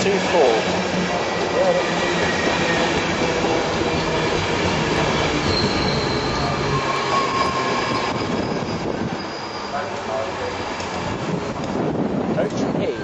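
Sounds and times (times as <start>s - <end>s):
train wheels rumbling on rails: 0.0s - 13.0s
high wheel squeals: 1.5s - 10.8s, 12.7s - 13.0s.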